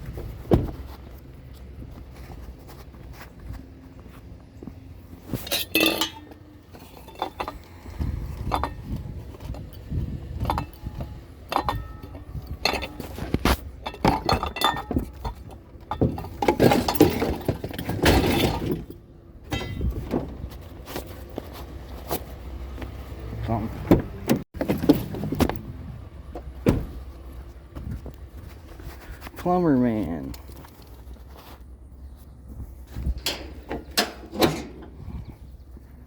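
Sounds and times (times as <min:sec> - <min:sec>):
bicycle metal clanks and rattles: 0:05.2 - 0:21.2, 0:33.1 - 0:35.3.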